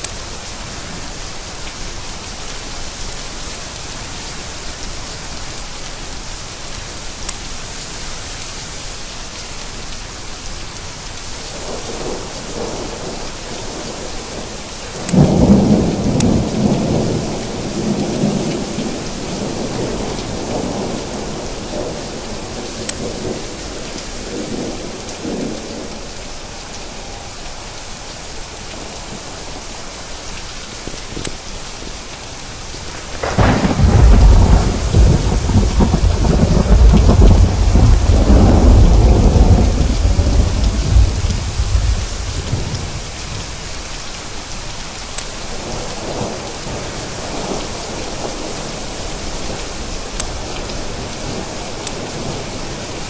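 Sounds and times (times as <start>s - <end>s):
heavy rain: 0.0s - 53.0s
thunder rolling: 11.6s - 27.4s, 32.9s - 43.6s.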